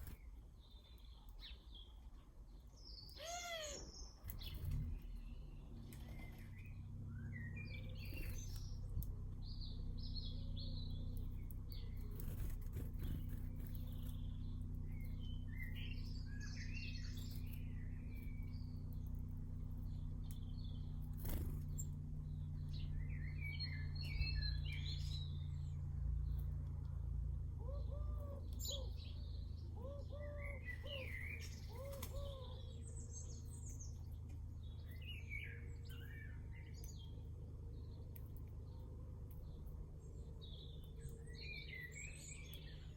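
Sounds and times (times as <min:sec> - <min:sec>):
low steady hum: 0:00.0 - 0:42.9
small birds chirping: 0:00.0 - 0:42.9
lower bird call: 0:03.1 - 0:04.6.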